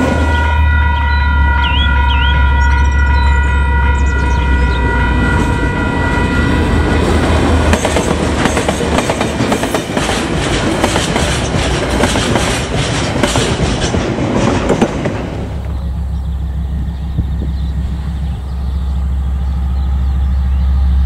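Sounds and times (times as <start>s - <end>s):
chord of high tones: 0.0s - 7.6s
diesel locomotive rumble: 0.0s - 21.0s
train wheels clattering over rails: 7.0s - 18.4s.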